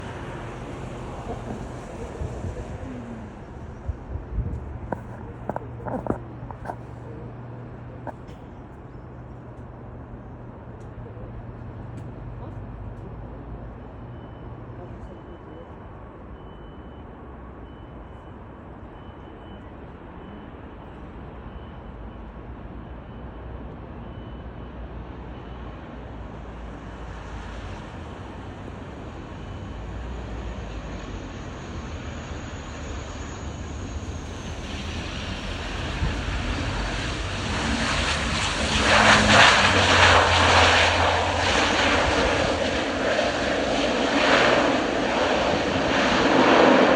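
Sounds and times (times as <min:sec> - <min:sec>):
high engine whine: 0:00.0 - 0:15.8, 0:25.6 - 0:46.9
turboprop airliner engine and propeller: 0:00.0 - 0:15.8, 0:25.2 - 0:46.9
wind rumble on microphone: 0:01.1 - 0:07.3, 0:34.2 - 0:39.0.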